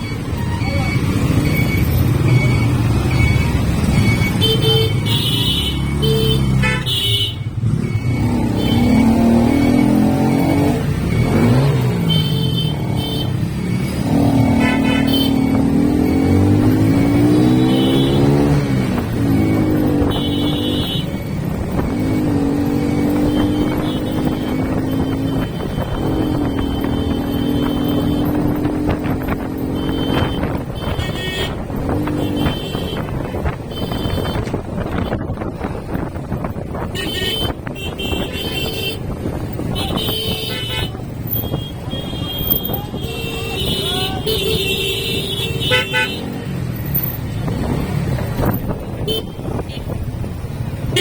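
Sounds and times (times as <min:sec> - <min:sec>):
motorcycle engine and road rumble: 0:00.0 - 0:51.0
vehicle horn honks: 0:04.4 - 0:07.5, 0:14.5 - 0:15.6, 0:29.7 - 0:31.6, 0:36.9 - 0:39.0, 0:39.7 - 0:46.3
wind buffeting microphone: 0:21.1 - 0:43.6.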